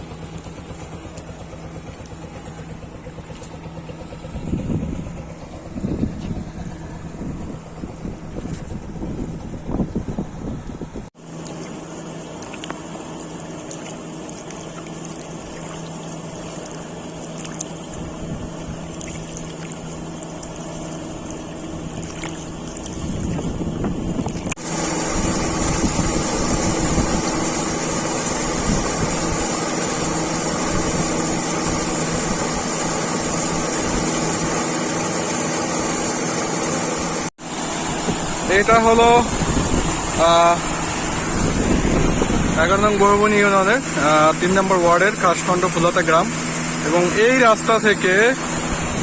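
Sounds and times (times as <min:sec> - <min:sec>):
boat engine running: 0:00.0 - 0:49.0
wind noise on microphone: 0:04.3 - 0:11.1, 0:17.9 - 0:19.4, 0:21.6 - 0:32.7, 0:37.9 - 0:43.2, 0:48.4 - 0:49.0.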